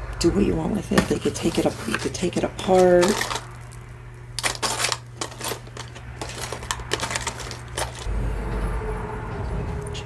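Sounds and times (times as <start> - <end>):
jewelry clinking and clattering: 1.0 - 3.7, 4.4 - 8.1.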